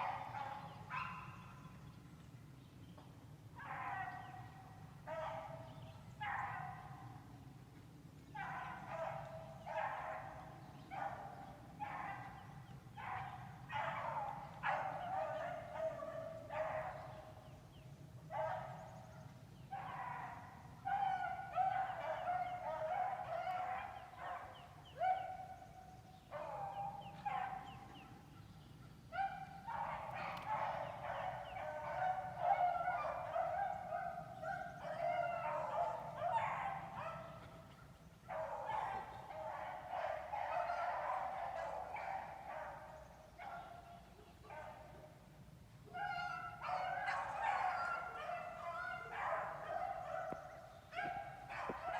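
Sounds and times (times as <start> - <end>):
pack of dogs baying: 19.8 - 25.7, 29.2 - 43.8, 45.9 - 51.9.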